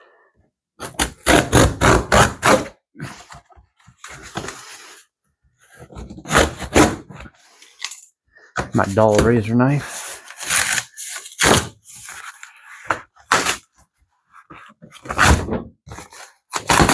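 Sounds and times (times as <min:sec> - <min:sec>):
knife cutting cardboard box: 0:00.8 - 0:03.4, 0:05.8 - 0:07.3, 0:09.9 - 0:13.7, 0:14.9 - 0:16.9.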